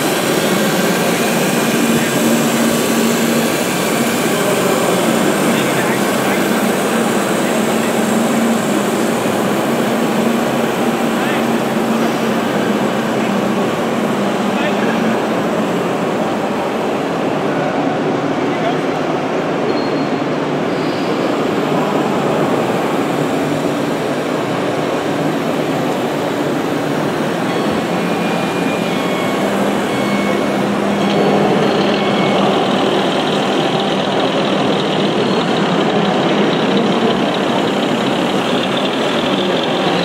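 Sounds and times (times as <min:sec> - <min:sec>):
toy trucks running: 0:31.1 - 0:40.0.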